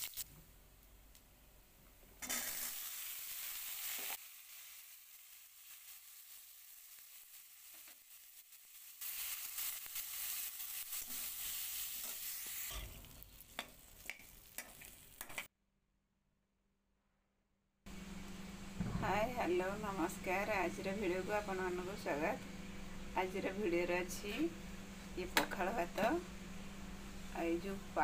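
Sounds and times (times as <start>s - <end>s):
vegetables sizzling in hot oil: 0.0s - 0.2s, 2.2s - 15.5s.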